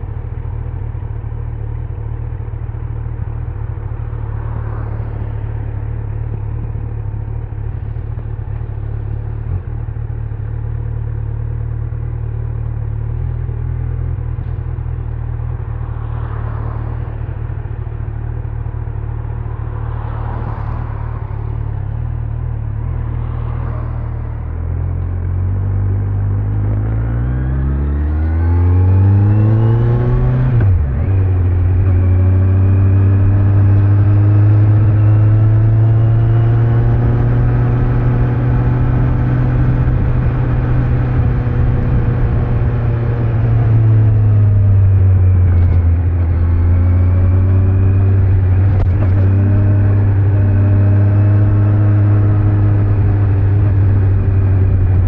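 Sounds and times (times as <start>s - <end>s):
motorcycle engine revving: 19.7s - 55.0s.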